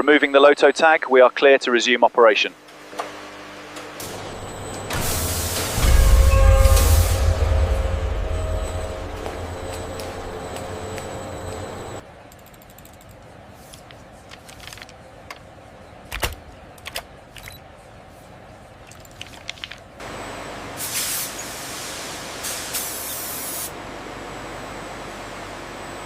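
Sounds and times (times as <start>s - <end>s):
machinery hum: 2.5s - 26.0s
spraying hiss: 4.9s - 7.6s, 20.8s - 23.7s
mechanical clicks and knocks: 16.1s - 17.6s.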